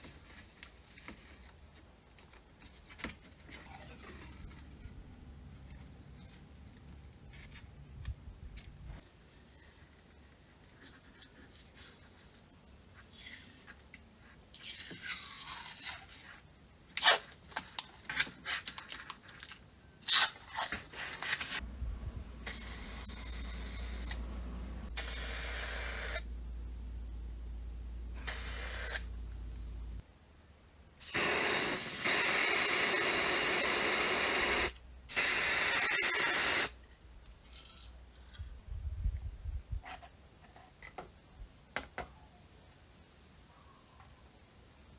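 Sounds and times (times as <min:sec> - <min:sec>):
spray nozzle hissing: 0:22.4 - 0:24.2, 0:24.9 - 0:26.3, 0:28.2 - 0:29.1, 0:31.0 - 0:36.8.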